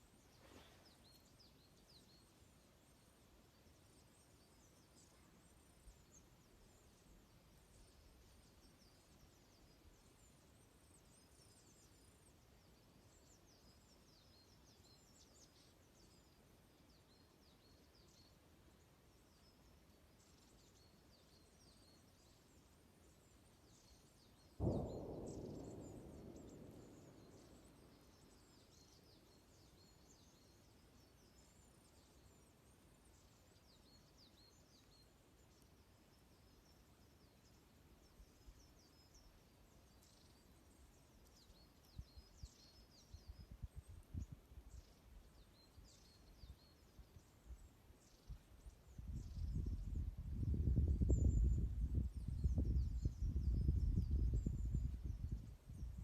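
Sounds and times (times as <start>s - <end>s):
small songbirds chirping: 0.0s - 56.0s
campfire popping and crackling: 24.6s - 28.3s.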